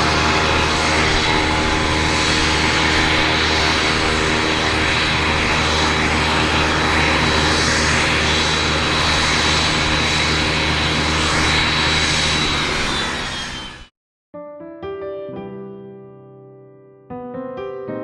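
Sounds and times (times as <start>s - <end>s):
jet engines running with fan whine: 0.0s - 13.9s.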